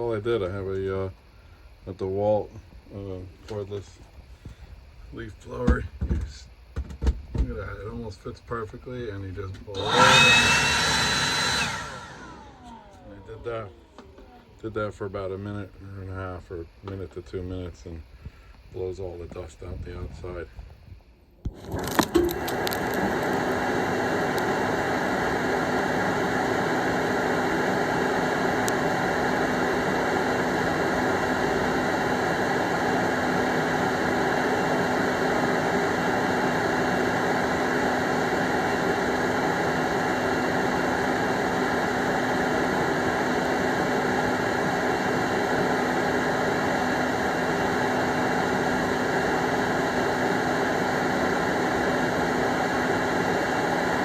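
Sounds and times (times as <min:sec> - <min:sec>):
low motor hum: 0:09.6 - 0:14.8
leaf blower rushing air: 0:09.7 - 0:14.4, 0:21.5 - 0:54.0.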